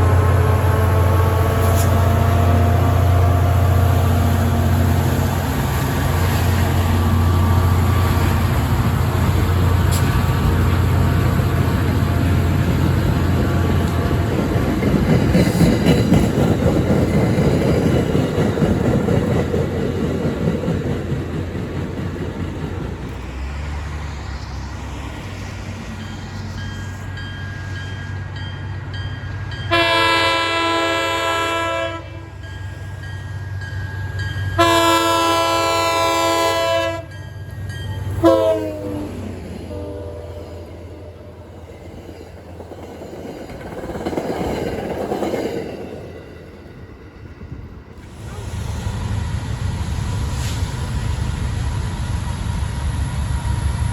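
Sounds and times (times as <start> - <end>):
train air horn blasts: 0.0 - 4.9, 29.7 - 32.4, 34.6 - 37.1, 38.1 - 41.5
locomotive engine droning: 0.0 - 53.9
train rumbling past: 0.0 - 53.9.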